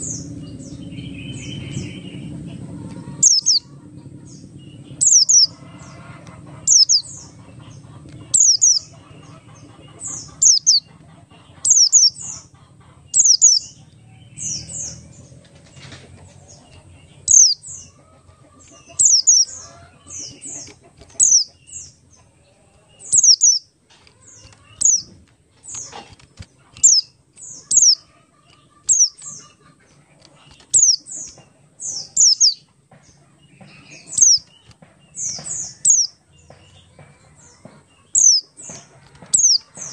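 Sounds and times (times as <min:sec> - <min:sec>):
bird chirping high down-slurred: 0:00.0 - 0:03.7, 0:04.4 - 0:06.0, 0:06.6 - 0:07.3, 0:08.3 - 0:08.9, 0:10.1 - 0:10.9, 0:11.6 - 0:12.5, 0:13.2 - 0:15.0, 0:17.2 - 0:18.0, 0:18.7 - 0:21.9, 0:23.0 - 0:25.9, 0:26.8 - 0:28.1, 0:30.7 - 0:32.7, 0:35.2 - 0:36.2, 0:38.1 - 0:38.7.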